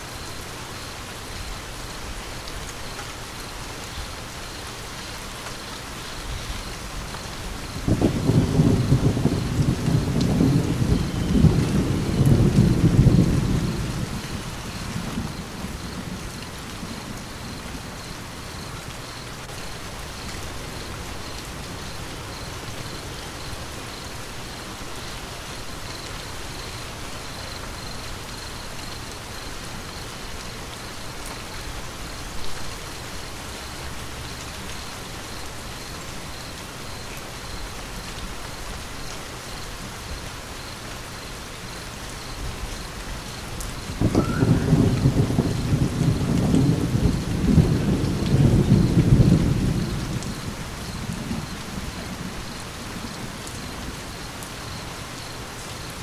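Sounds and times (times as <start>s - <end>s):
rain pattering: 0.0s - 56.0s
low thunder rumble: 6.2s - 23.0s, 42.4s - 54.9s.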